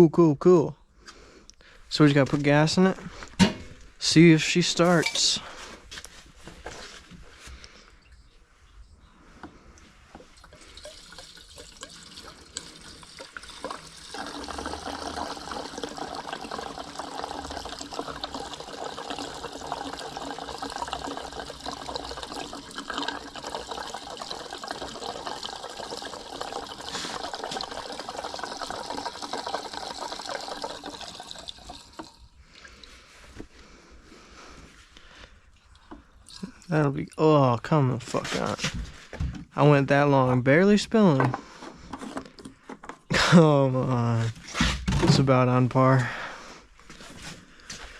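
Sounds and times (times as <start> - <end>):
gasoline pouring into tank: 10.2 - 33.0, 35.5 - 37.4.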